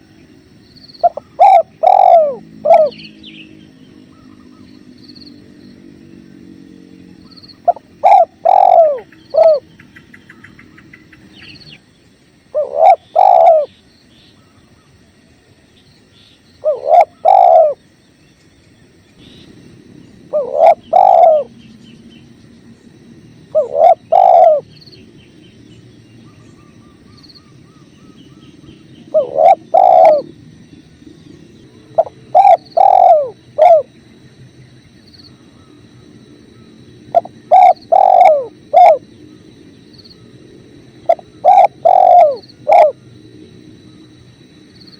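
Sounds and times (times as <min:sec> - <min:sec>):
small birds chirping: 0:00.0 - 0:15.0, 0:15.7 - 0:43.2
dove cooing: 0:01.0 - 0:04.7, 0:07.6 - 0:10.6, 0:12.5 - 0:13.7, 0:16.6 - 0:17.8, 0:20.2 - 0:21.6, 0:23.4 - 0:24.8, 0:29.0 - 0:30.4, 0:31.8 - 0:34.0, 0:36.6 - 0:39.2, 0:40.9 - 0:43.1.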